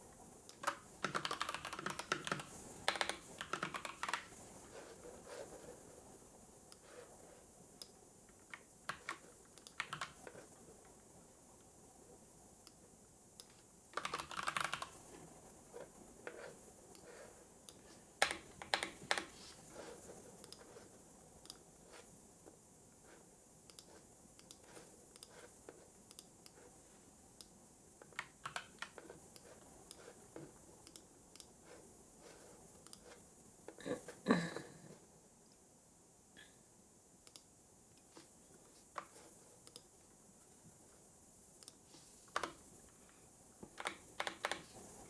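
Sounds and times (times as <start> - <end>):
faint steady hiss: 0.0 - 45.0
keyboard typing: 0.5 - 4.4, 8.5 - 10.5, 13.4 - 15.1, 18.2 - 20.8, 28.0 - 30.2, 43.7 - 44.9.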